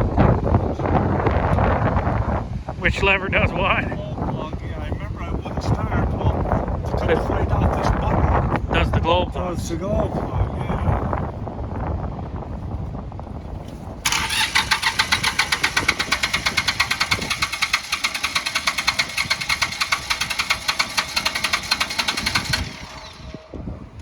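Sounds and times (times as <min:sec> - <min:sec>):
starter cranking diesel engine: 0:14.0 - 0:24.0.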